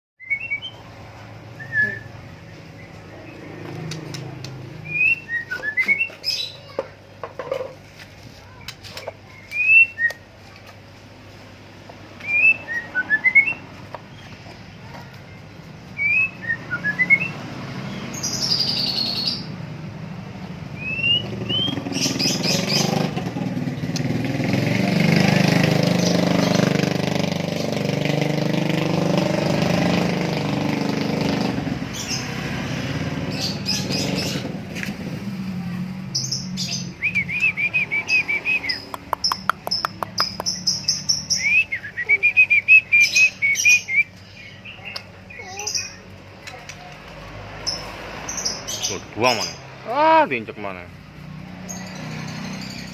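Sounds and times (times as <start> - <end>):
songbird whistling and chattering: 0.2 - 0.8, 1.5 - 6.8, 8.6 - 10.3, 12.2 - 14.4, 15.9 - 19.5, 20.8 - 24.1, 36.2 - 46.1.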